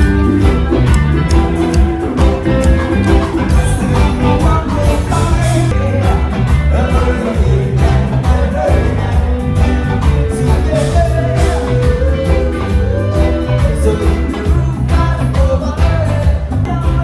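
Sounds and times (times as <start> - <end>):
rock music with singing: 0.0 - 17.0.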